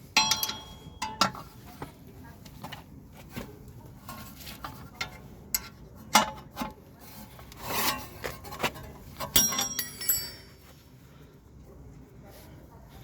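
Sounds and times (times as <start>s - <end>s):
ringing metal clank: 0.2s - 1.3s, 9.3s - 10.6s.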